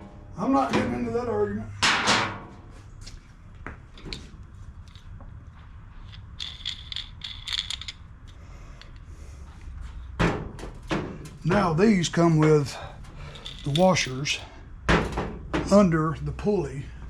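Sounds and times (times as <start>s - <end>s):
small metallic clicks and clinks: 6.0s - 9.1s, 13.2s - 14.5s.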